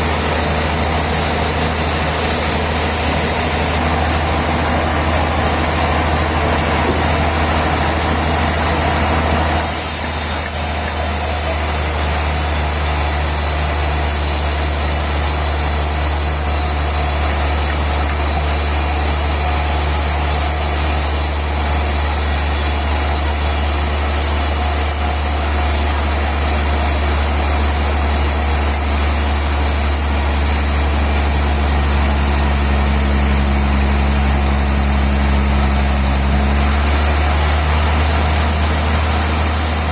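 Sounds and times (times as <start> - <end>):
bandsaw machinery humming: 0.0 - 39.9.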